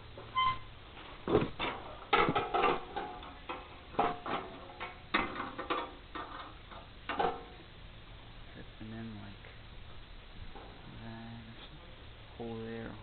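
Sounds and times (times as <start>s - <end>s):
steel pieces clanking against frame: 1.3s - 7.5s.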